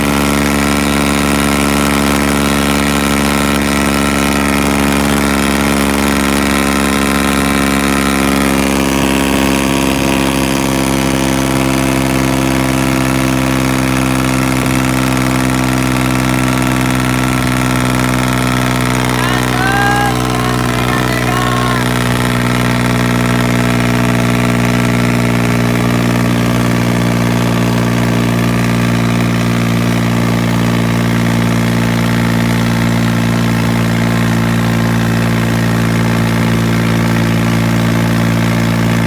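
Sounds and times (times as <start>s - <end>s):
tractor diesel engine running: 14.1s - 39.0s.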